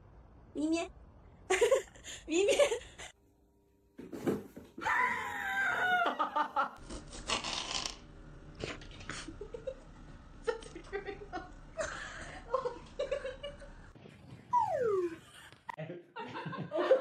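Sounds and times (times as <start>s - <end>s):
animal calling: 14.5s - 15.4s.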